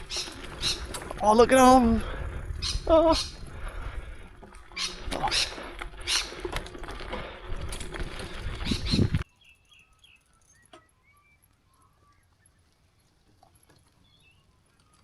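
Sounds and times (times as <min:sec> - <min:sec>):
small birds chirping: 0:02.6 - 0:03.4, 0:04.7 - 0:06.4, 0:08.6 - 0:15.0
rustling and rattling: 0:03.3 - 0:09.2.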